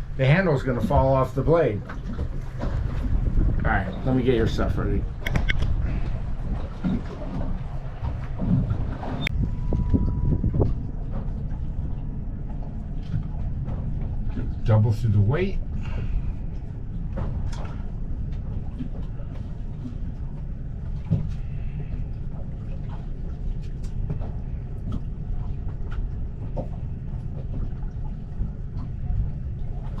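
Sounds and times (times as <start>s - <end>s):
boat engine idling: 0.0s - 30.0s
fishing tackle clicks and taps: 5.2s - 5.7s.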